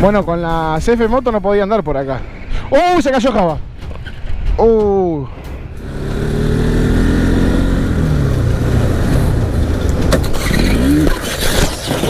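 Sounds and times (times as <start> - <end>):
motorcycle engine: 5.7 - 12.0.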